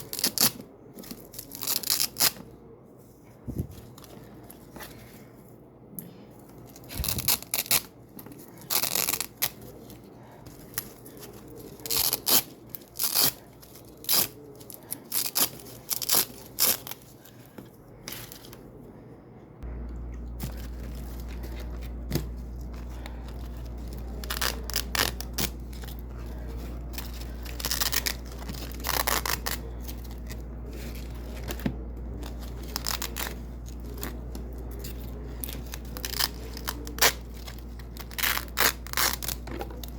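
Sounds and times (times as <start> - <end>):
steady low hum: 0.0 - 39.9
velcro ripping: 6.9 - 7.9, 8.6 - 9.6, 23.8 - 26.0, 27.0 - 29.8, 35.3 - 39.9.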